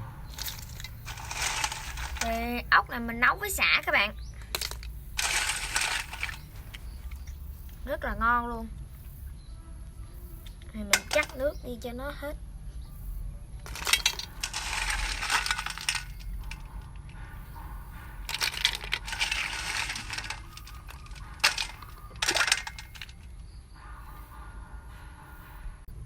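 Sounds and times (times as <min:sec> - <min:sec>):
snail shells rattling in a pot: 0:00.0 - 0:08.2, 0:10.4 - 0:11.8, 0:13.6 - 0:23.6.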